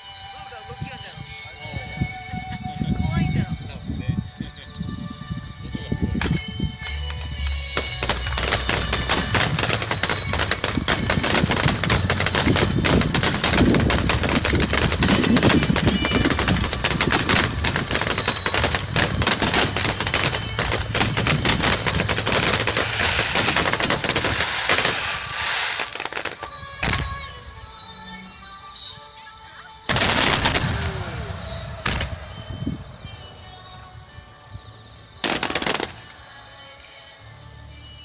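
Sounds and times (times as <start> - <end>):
fireworks shells bursting: 6.3 - 27.4, 29.9 - 33.6, 35.2 - 36.1.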